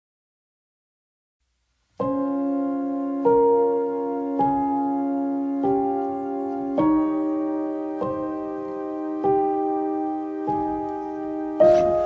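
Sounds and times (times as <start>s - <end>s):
faint hiss: 1.4s - 2.2s, 10.6s - 12.0s.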